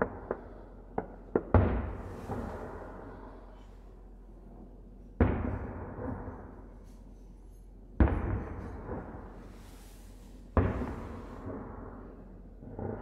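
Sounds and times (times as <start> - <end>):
firework shells bursting: 0.0 - 3.1, 10.1 - 12.0.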